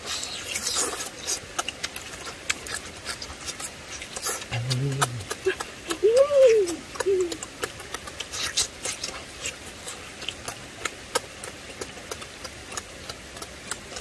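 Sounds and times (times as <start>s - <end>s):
faint hiss: 0.0s - 2.4s
chewing and lip-smacking: 0.0s - 14.0s.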